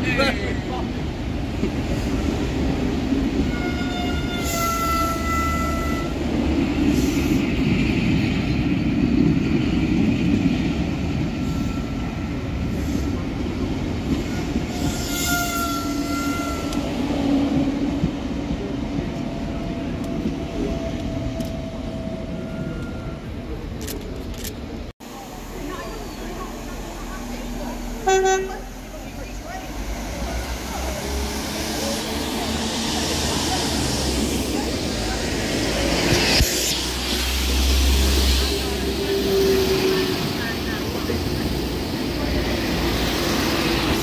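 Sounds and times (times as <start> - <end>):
train rumbling: 0.0 - 44.0.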